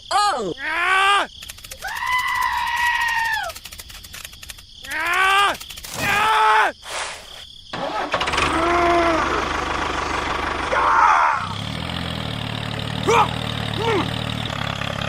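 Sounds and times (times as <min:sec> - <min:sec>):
rising and falling pitched calls: 0:01.2 - 0:03.7
engine starting and idling: 0:07.7 - 0:15.0.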